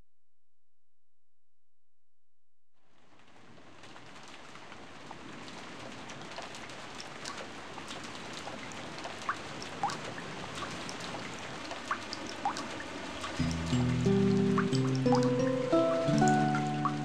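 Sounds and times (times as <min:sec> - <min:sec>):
steady rain: 0:02.9 - 0:17.0
drops plinking into water: 0:13.4 - 0:17.0.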